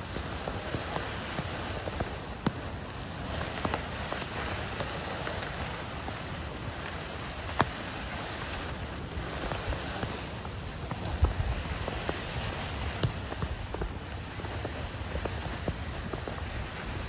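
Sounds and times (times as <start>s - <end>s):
sled scraping over snow: 0.0s - 17.0s.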